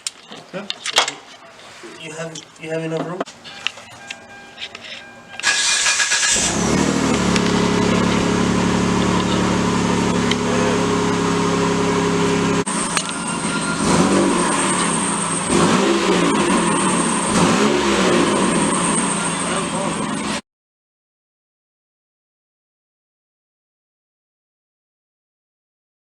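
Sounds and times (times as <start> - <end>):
car engine idling: 1.6 - 20.4
car engine revving: 3.3 - 20.4.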